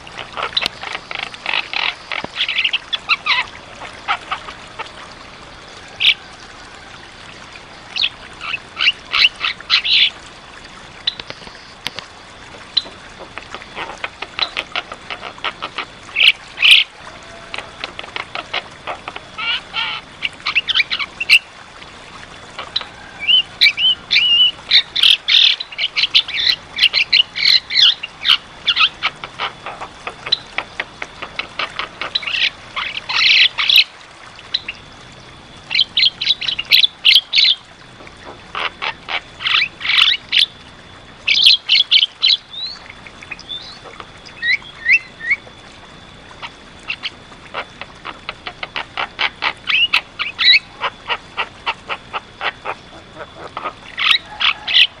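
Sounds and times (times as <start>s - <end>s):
bird chattering song: 0.2s - 3.5s, 13.8s - 16.9s, 22.6s - 30.6s, 41.3s - 45.4s, 46.4s - 55.0s.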